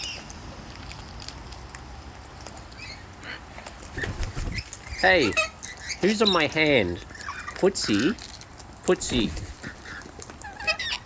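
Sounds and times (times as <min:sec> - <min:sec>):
rain pattering: 0:00.0 - 0:10.8
lorikeets chirping: 0:04.5 - 0:07.6.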